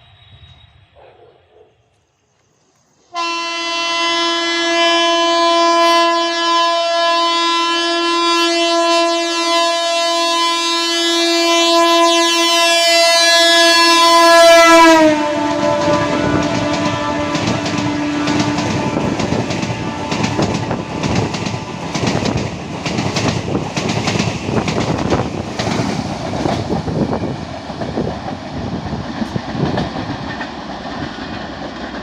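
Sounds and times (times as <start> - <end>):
rush of passing train coaches: 0.0 - 1.6, 2.6 - 32.0
electric train horn blast: 3.1 - 22.4.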